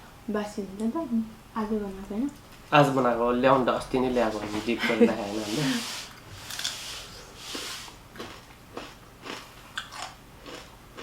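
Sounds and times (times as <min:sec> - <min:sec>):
chewing and mouth smacks: 0:08.1 - 0:11.0.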